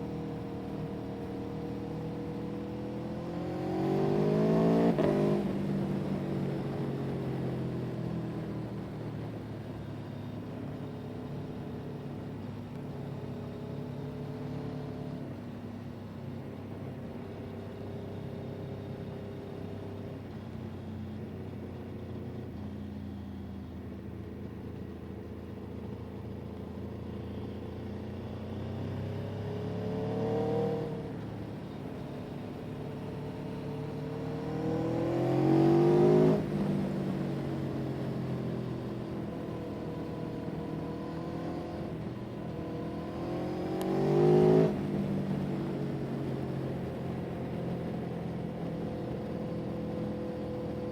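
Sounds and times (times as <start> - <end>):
vehicle engine revving: 42.6 - 45.0.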